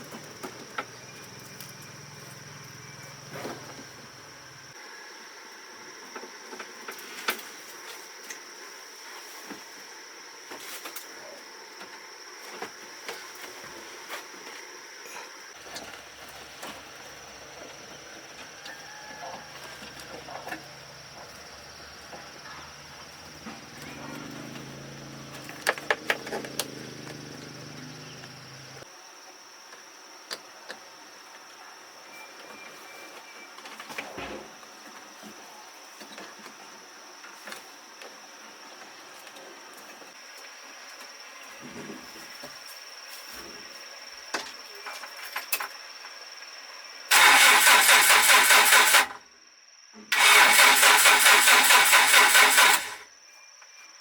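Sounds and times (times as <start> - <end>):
truck engine cranking: 47.1 - 49.2, 50.1 - 53.0.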